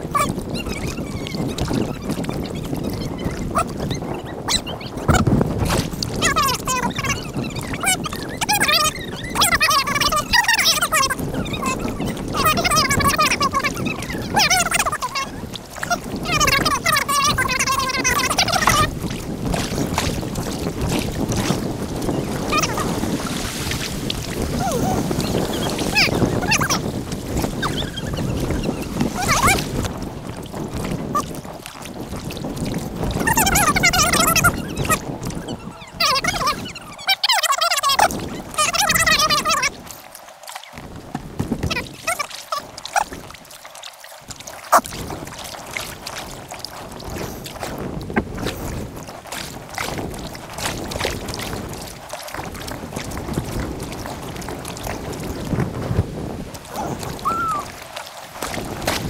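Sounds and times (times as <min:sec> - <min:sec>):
wind noise: 0:00.0 - 0:40.1, 0:40.7 - 0:43.6, 0:44.2 - 0:59.0
water rushing: 0:00.0 - 0:59.0
high squeaky chirps: 0:04.2 - 0:05.0, 0:06.2 - 0:15.2, 0:27.6 - 0:29.6.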